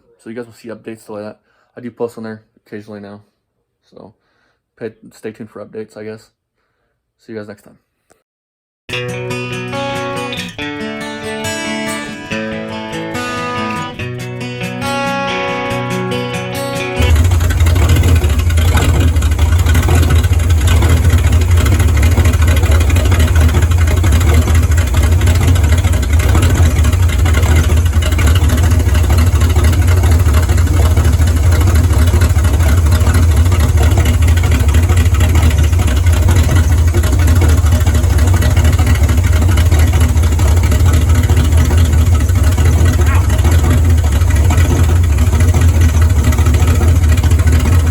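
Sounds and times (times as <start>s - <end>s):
car engine running steadily: 15.7s - 47.9s.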